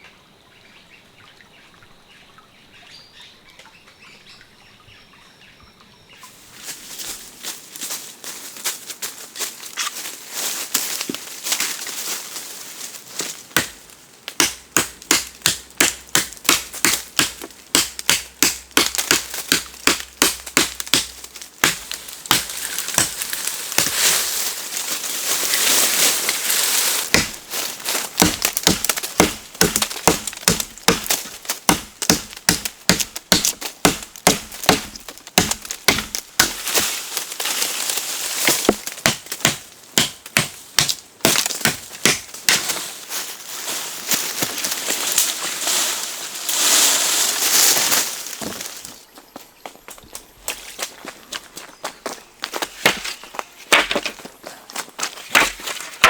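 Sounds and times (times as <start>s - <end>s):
blade chopping wood: 13.6s - 24.2s, 27.1s - 27.5s, 28.2s - 37.0s, 38.4s - 42.8s, 52.6s - 54.2s, 55.3s - 56.0s.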